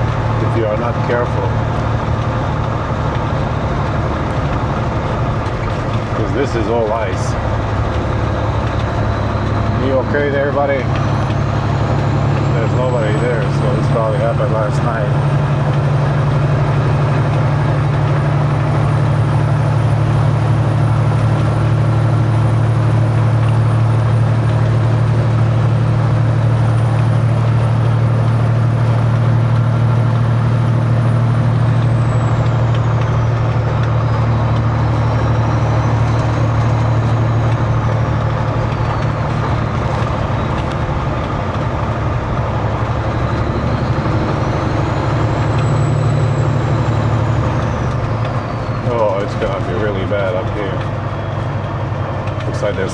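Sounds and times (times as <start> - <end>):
diesel truck engine droning: 0.0 - 52.9.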